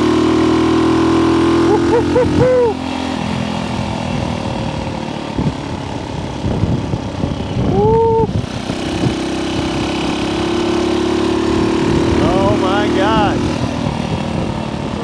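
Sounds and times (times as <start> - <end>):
small motorcycle engine running: 0.0 - 15.0
person whooping: 2.2 - 2.8, 7.7 - 8.3
wind buffeting on microphone: 3.9 - 10.5, 11.4 - 15.0.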